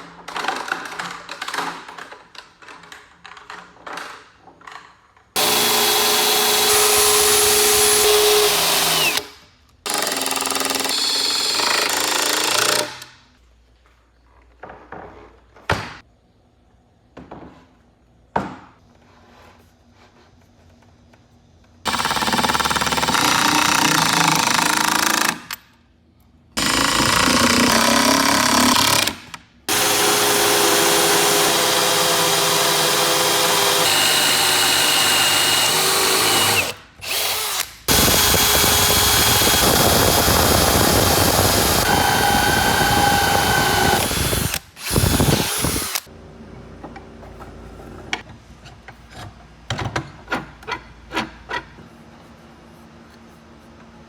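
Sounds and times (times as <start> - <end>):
handheld power tool running: 5.4 - 9.3, 21.9 - 25.6, 26.6 - 46.1.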